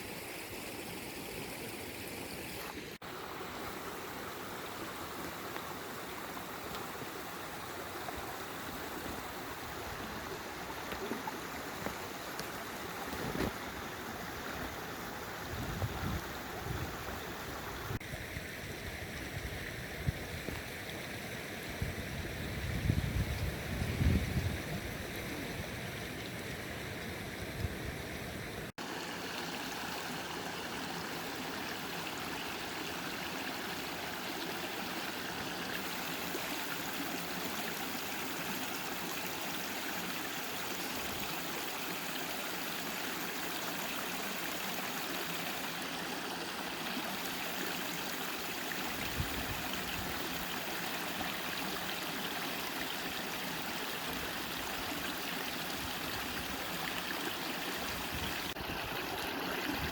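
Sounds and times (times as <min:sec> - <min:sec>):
river water rushing: 0:28.2 - 0:59.9.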